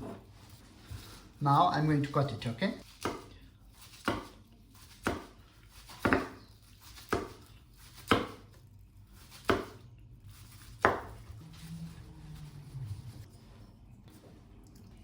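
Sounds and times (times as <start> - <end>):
knife chopping on board: 2.9 - 3.3, 3.9 - 8.5, 9.2 - 9.8, 10.6 - 11.2.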